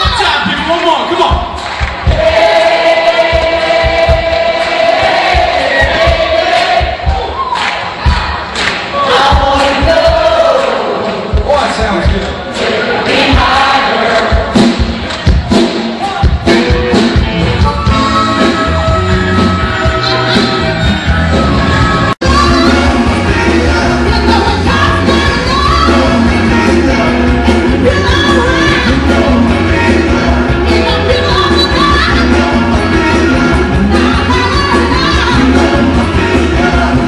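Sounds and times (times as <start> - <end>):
drum hits: 1.2 - 7.4, 13.1 - 19.4
live rock band: 12.1 - 37.0
bass line: 14.3 - 37.0
person singing: 16.0 - 37.0.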